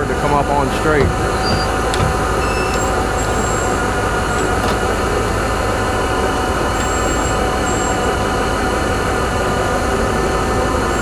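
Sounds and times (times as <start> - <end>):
truck engine and winch running: 0.0 - 11.0
short high squeaks: 1.0 - 4.8.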